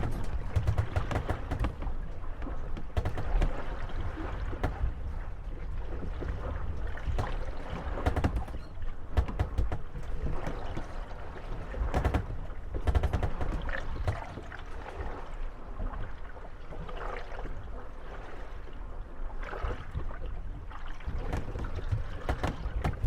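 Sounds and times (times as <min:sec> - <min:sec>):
water washing: 0:00.0 - 0:11.0
wooden boats knocking and creaking: 0:00.0 - 0:18.2, 0:19.4 - 0:23.0.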